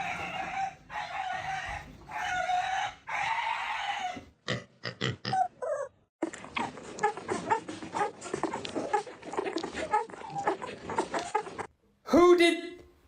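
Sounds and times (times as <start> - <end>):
animal calling: 5.2 - 11.7.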